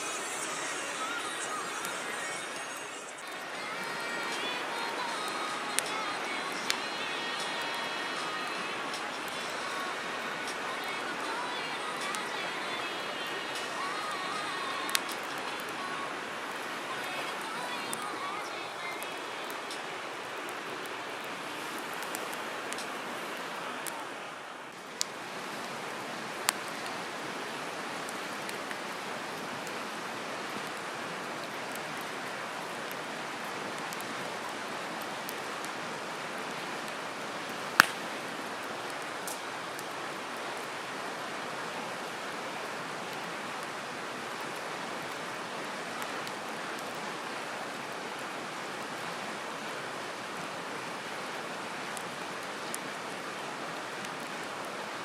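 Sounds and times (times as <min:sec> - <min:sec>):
campfire rushing: 0:00.0 - 0:49.7
firewood popping: 0:37.7 - 0:38.1.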